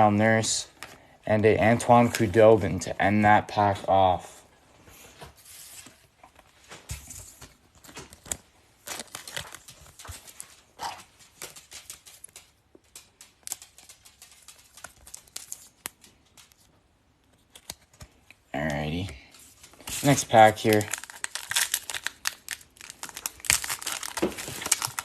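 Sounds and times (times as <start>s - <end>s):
trading cards clicking and rustling: 6.7s - 25.0s.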